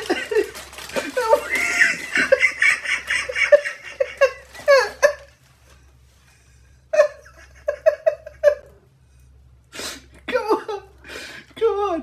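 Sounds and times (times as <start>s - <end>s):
person laughing: 0.0s - 5.4s, 6.9s - 8.7s.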